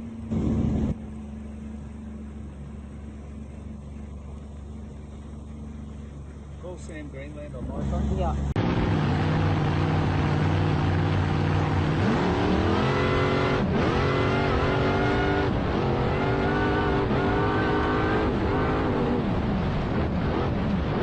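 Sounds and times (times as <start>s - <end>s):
motor engine revving: 7.6s - 19.4s.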